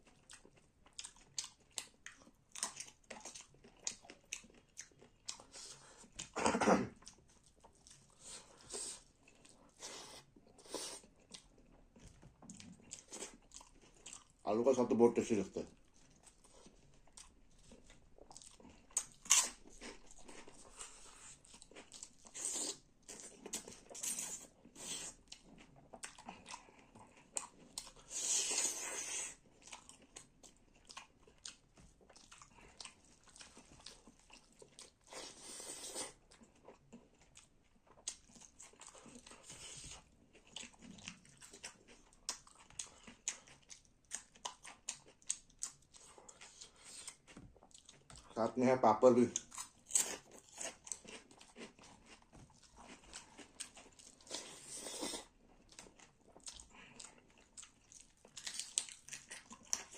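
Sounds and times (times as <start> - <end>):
person chewing and crunching food: 0.0 - 59.9.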